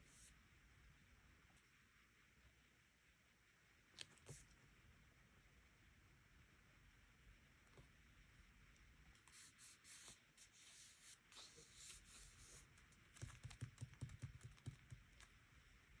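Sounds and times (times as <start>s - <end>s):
pen scratching on paper: 9.3s - 12.7s.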